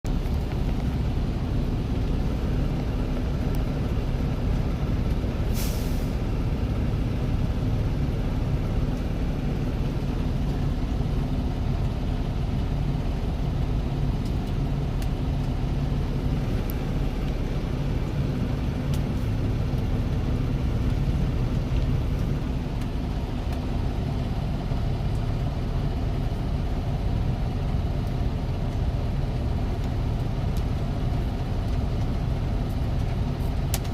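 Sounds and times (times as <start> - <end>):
diesel truck engine running: 0.0 - 33.9
short air hiss: 5.5 - 6.1.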